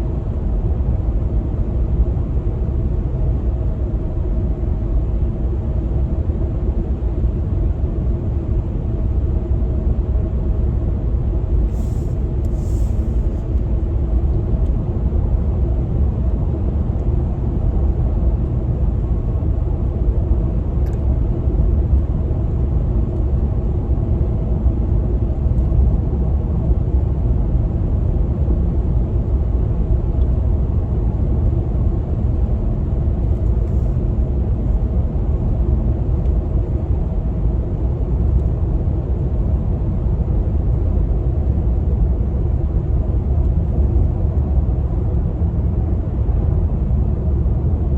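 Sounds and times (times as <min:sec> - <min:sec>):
steady hum: 0:10.7 - 0:16.8.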